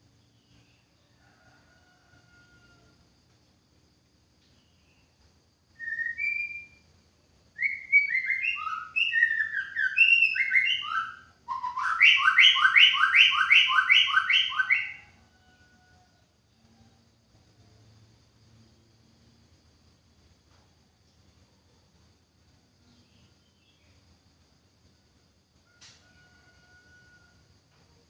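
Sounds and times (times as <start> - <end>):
bird singing whistled notes: 5.8 - 6.9, 7.5 - 15.2.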